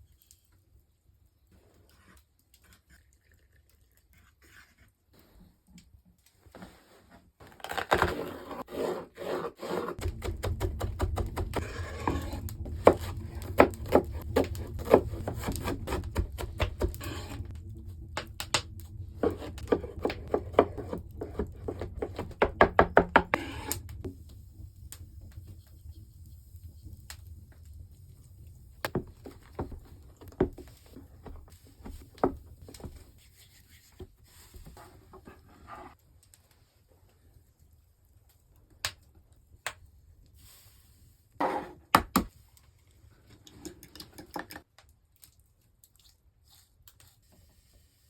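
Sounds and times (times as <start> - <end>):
low steady hum: 10.0 - 33.2.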